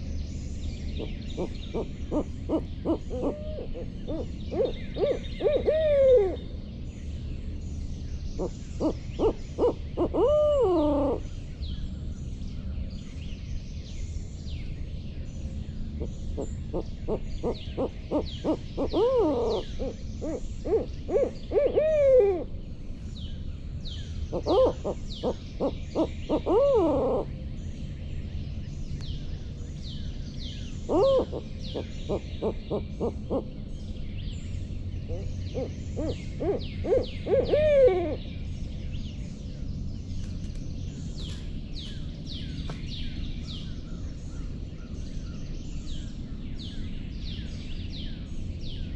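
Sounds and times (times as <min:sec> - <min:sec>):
owl hooting: 0:01.0 - 0:06.4, 0:08.4 - 0:11.4, 0:16.0 - 0:22.5, 0:24.3 - 0:27.4, 0:30.8 - 0:33.6, 0:35.0 - 0:38.3.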